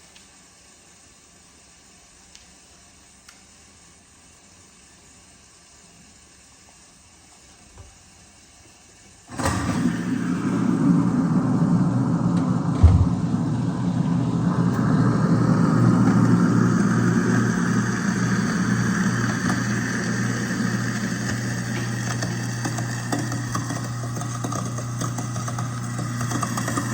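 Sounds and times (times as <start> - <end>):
garbage disposal motor hum: 9.2 - 26.9.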